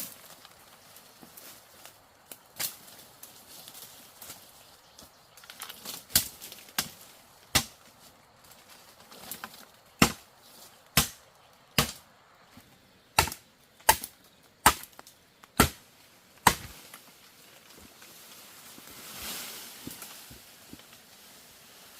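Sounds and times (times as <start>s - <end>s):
blade chopping bamboo: 6.1s - 7.8s, 10.0s - 10.3s, 11.0s - 11.2s, 13.2s - 15.0s, 15.6s - 16.8s.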